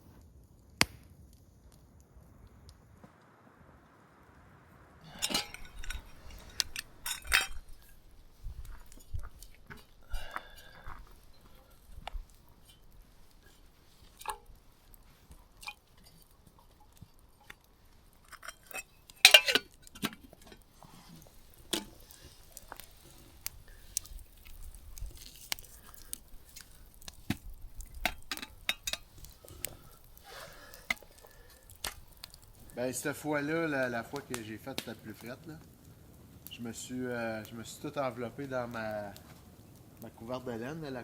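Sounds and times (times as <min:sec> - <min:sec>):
cookware clicks and knocks: 0:05.1 - 0:07.6, 0:18.4 - 0:20.2.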